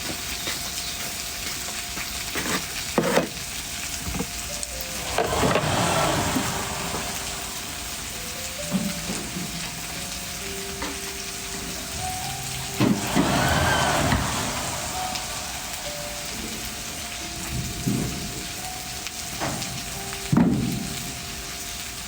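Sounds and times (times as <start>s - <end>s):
food sizzling over fire: 0.0s - 22.0s
rushing swell: 4.6s - 19.3s.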